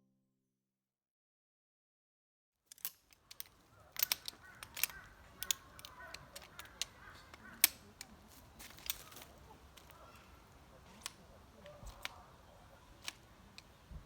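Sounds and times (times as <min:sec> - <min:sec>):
sharp clicks and taps: 0:02.7 - 0:10.3
faint background noise: 0:02.7 - 0:14.0.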